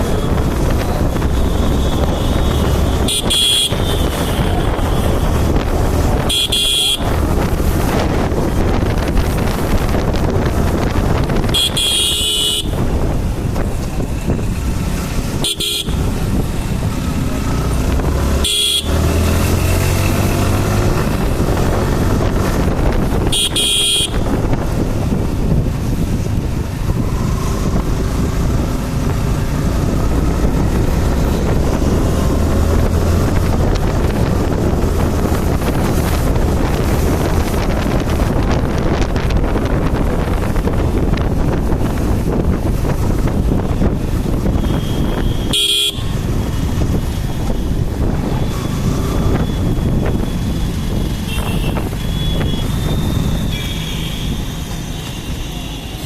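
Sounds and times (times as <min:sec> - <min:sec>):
motorcycle engine running: 0:00.0 - 0:55.8
wind rush on microphone: 0:00.0 - 0:56.0
horn toots: 0:01.2 - 0:05.5, 0:06.1 - 0:07.3, 0:11.4 - 0:12.9, 0:15.3 - 0:16.1, 0:18.2 - 0:19.6, 0:23.2 - 0:24.4, 0:44.4 - 0:46.6, 0:48.5 - 0:56.0.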